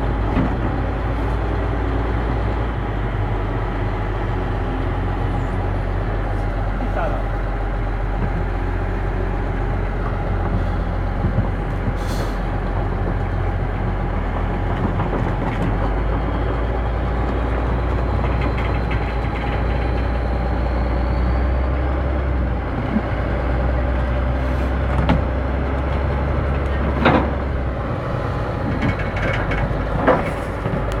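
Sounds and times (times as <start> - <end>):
heavy diesel machinery running: 0.0 - 31.0.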